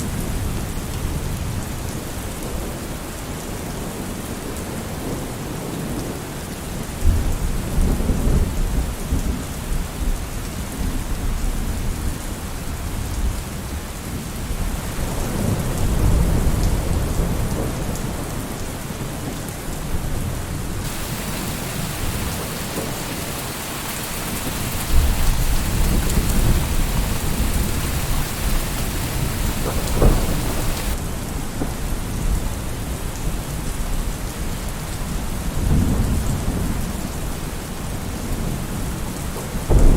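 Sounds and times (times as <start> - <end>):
heavy rain: 0.0 - 39.9
sharp thunder crack: 20.8 - 31.0
thunder rolling: 20.8 - 31.0.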